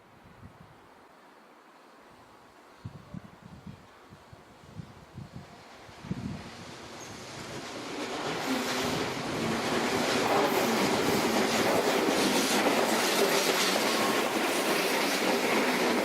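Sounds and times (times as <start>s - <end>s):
train wheels clattering over rails: 6.3s - 16.0s.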